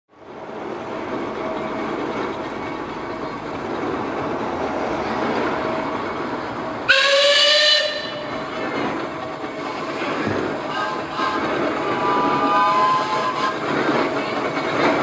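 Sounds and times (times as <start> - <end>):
shrill steam whistle: 6.9 - 8.3, 10.7 - 13.6.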